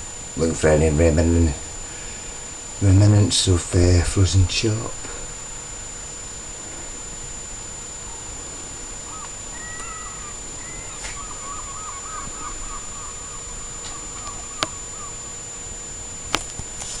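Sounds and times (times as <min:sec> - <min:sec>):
steady hiss: 0:00.0 - 0:17.0
faint bird calls: 0:08.0 - 0:15.8.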